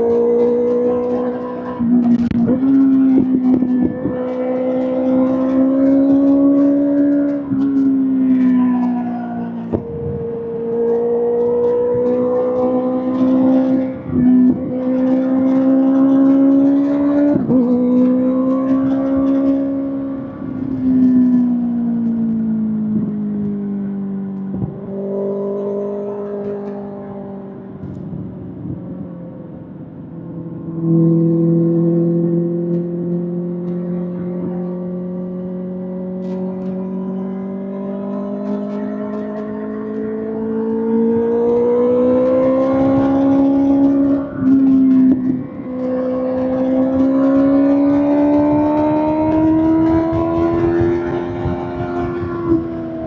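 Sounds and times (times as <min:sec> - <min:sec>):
motorcycle engine revving under load: 0:00.0 - 0:27.2, 0:37.8 - 0:53.0.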